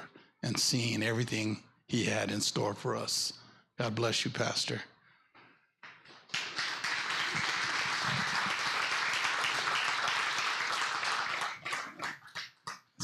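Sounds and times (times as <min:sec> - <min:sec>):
congregation applauding: 0:06.1 - 0:13.0.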